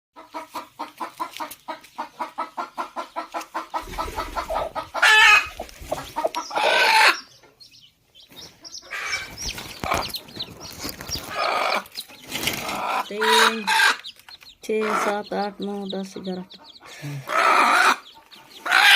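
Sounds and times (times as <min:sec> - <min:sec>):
hen clucking: 0:00.2 - 0:18.9.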